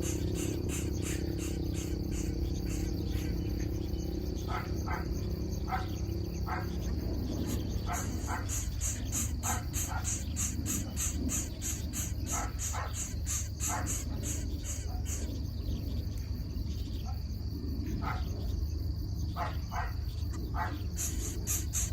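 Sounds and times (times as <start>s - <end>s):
insects chirping: 0.0s - 21.9s
short insect calls: 0.0s - 21.9s
steady high insect drone: 0.0s - 21.9s.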